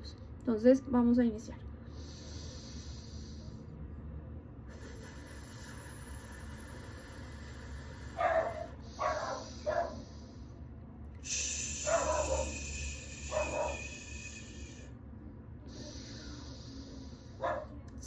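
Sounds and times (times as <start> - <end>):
person exhaling in hiss: 1.9 - 3.6, 4.7 - 10.5, 11.2 - 14.9, 15.7 - 17.4
dog barking: 8.2 - 10.2, 11.8 - 13.9, 17.4 - 17.8.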